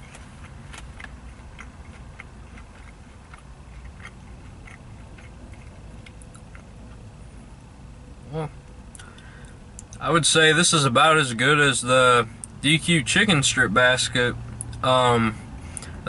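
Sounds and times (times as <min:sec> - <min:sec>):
person chewing with wet clicks: 0:00.0 - 0:07.1, 0:08.9 - 0:10.0, 0:14.6 - 0:14.8
low background rumble: 0:00.0 - 0:16.0.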